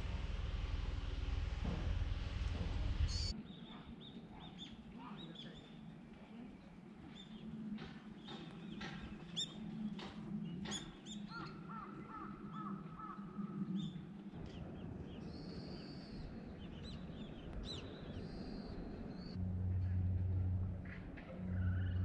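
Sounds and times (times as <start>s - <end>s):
low background hum: 0.0s - 4.4s, 8.5s - 22.0s
birds chirping: 2.9s - 19.4s.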